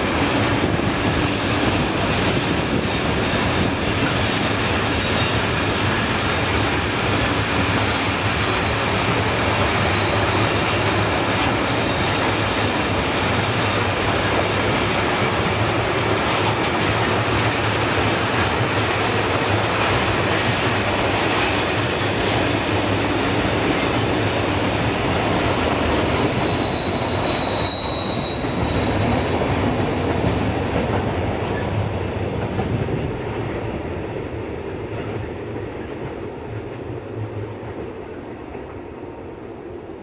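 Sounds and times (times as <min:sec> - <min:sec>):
wheels rumbling on rail: 0:00.0 - 0:40.0
high wheel squeal: 0:08.5 - 0:15.5, 0:25.3 - 0:29.6.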